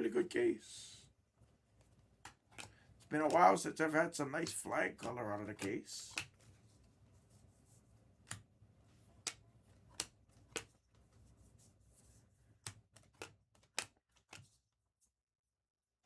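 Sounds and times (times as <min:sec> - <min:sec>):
cards flipping with clicks: 0:01.8 - 0:06.9, 0:08.2 - 0:08.5, 0:09.2 - 0:11.2, 0:12.6 - 0:14.6.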